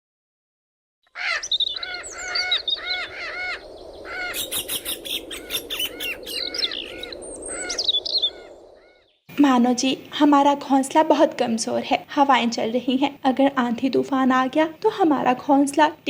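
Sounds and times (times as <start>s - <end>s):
birds chirping: 1.1s - 9.3s.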